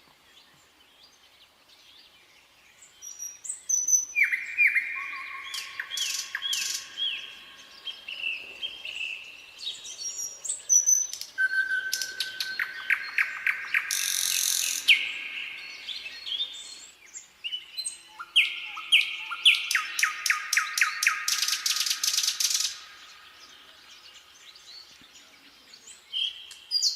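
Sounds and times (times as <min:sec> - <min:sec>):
nightingale singing: 0:00.0 - 0:26.9
harsh rattling bird call: 0:12.6 - 0:15.2, 0:19.6 - 0:23.0.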